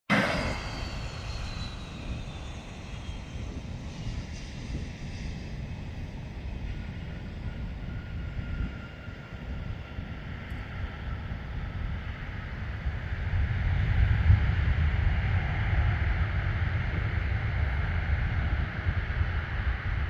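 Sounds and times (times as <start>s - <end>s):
jet engines whining: 0.1s - 20.0s.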